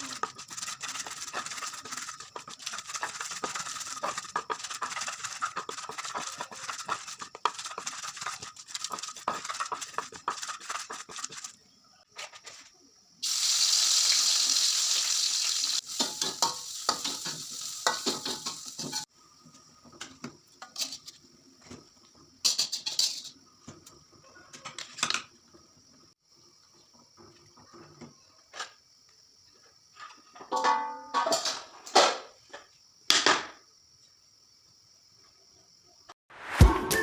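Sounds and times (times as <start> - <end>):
frying sizzle: 13.2 - 20.9
pots dishes and cutlery clinking: 16.0 - 19.1, 30.4 - 32.1.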